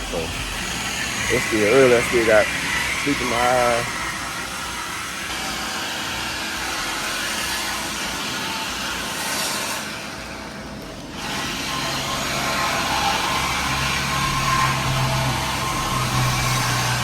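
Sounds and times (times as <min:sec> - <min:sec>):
car engine running: 0:12.7 - 0:17.0.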